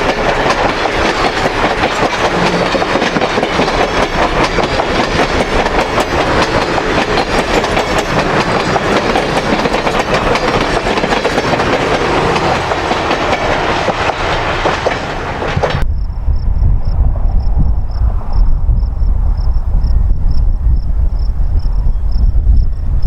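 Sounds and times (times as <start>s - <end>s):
train wheels clacking on rails: 0.0s - 15.8s
loud rush of train noise: 0.0s - 23.0s.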